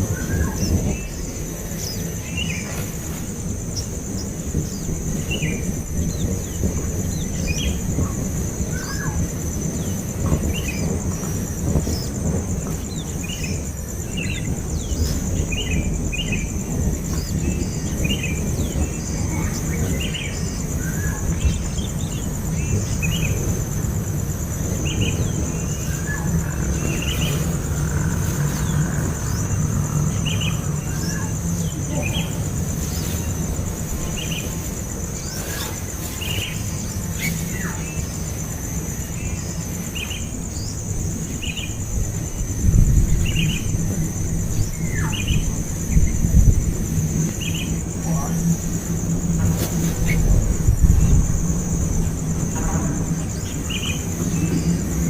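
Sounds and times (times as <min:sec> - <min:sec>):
low rumble: 0:00.0 - 0:35.9
nestling birds chirping: 0:00.0 - 0:55.0.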